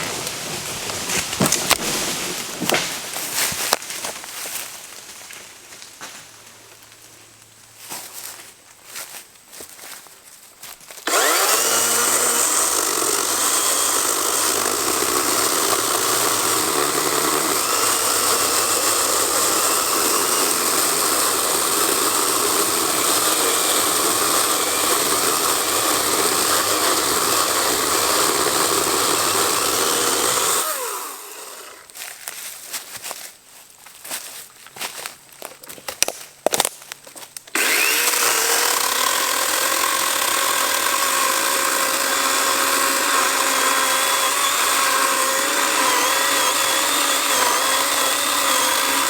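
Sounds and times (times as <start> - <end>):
electric chainsaw whine: 11.0 - 31.9, 37.5 - 49.0
chainsaw sawing through log: 11.0 - 32.0, 37.5 - 49.0.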